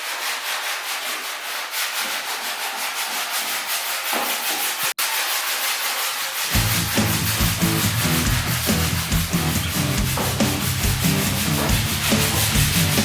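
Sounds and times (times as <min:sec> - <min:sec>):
sanding rasping: 0:00.0 - 0:13.0
music with a beat: 0:06.6 - 0:13.0.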